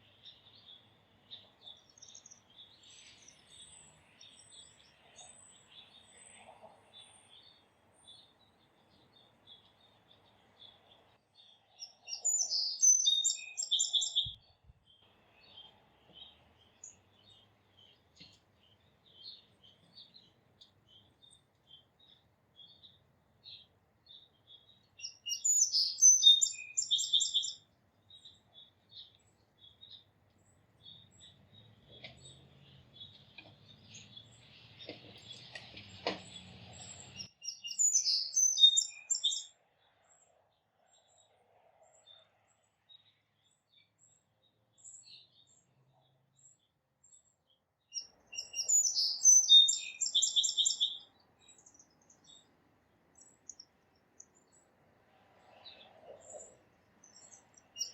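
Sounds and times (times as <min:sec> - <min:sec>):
songbird singing: 0:00.0 - 0:57.9.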